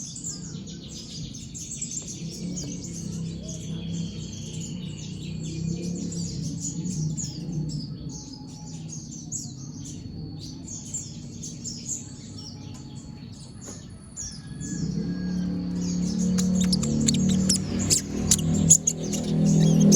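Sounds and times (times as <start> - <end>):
sunbird chattering song: 15.2 - 19.9.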